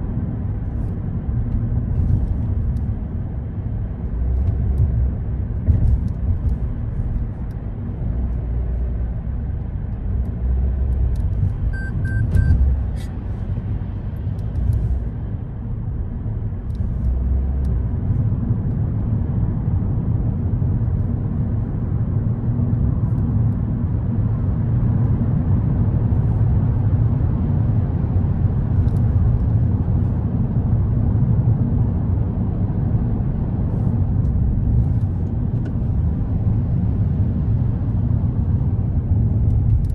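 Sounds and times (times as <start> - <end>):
car engine and road rumble: 0.0 - 39.9
short beeps: 11.7 - 12.7.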